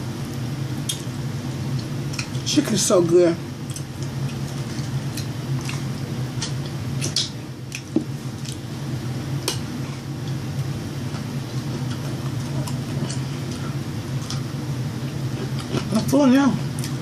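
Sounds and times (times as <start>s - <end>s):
steady low hum: 0.0s - 17.0s
wet chewing clicks and smacks: 3.6s - 8.6s.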